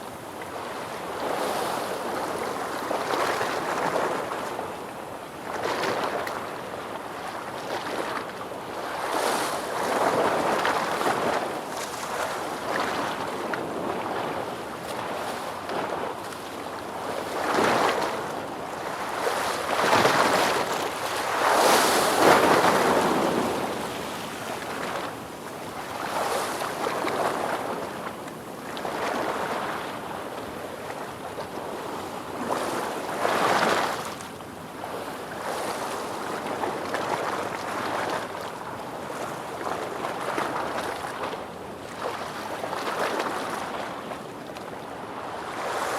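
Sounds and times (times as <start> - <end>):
ocean waves surging: 19.9 - 25.1.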